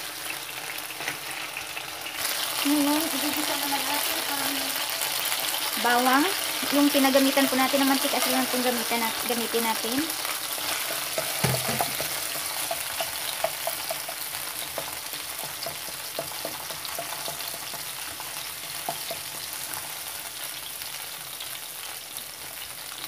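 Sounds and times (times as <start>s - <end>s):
garlic sizzling in hot oil: 0.0s - 23.0s
wooden spoon stirring: 10.5s - 19.9s.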